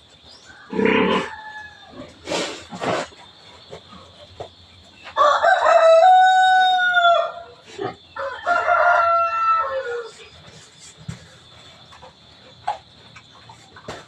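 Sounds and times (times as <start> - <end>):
rooster crowing: 0.5 - 2.0, 5.2 - 10.2.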